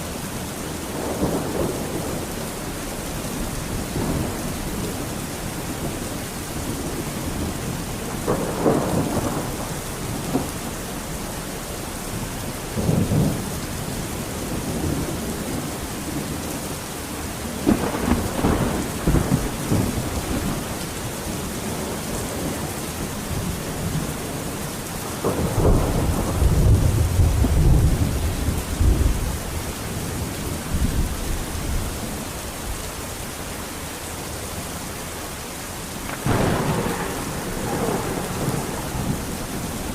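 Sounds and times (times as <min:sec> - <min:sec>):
thunder rumbling: 0:00.0 - 0:32.8, 0:36.0 - 0:39.9
heavy rain hissing: 0:00.0 - 0:39.9.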